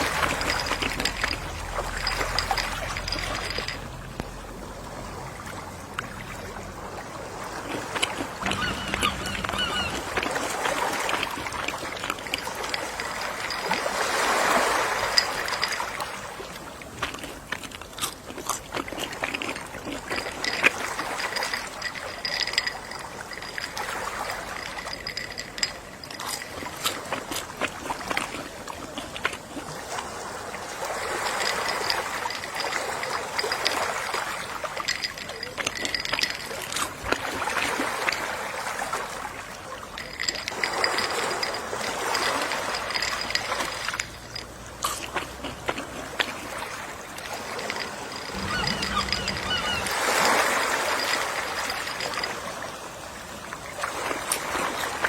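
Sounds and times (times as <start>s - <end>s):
sea waves washing onto shore: 0.0s - 17.0s.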